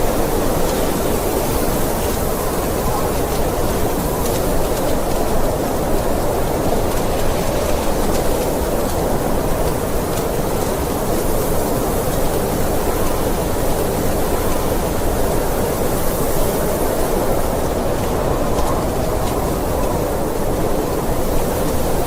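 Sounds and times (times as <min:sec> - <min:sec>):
blizzard wind blowing: 0:00.0 - 0:22.0.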